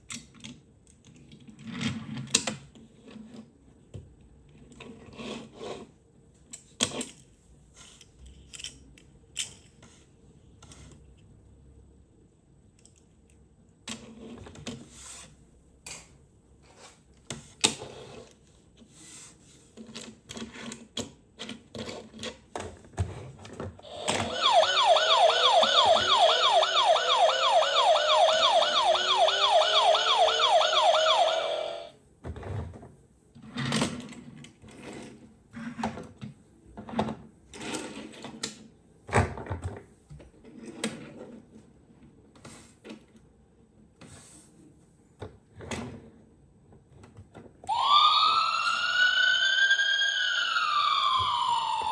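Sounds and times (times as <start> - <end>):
toy electronic siren wailing: 23.9 - 31.9, 47.7 - 51.9.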